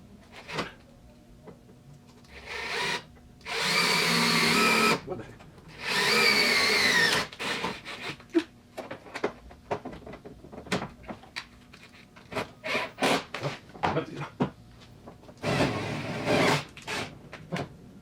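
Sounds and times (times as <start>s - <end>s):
power drill whine: 2.4s - 5.0s, 5.8s - 8.1s, 15.4s - 17.1s.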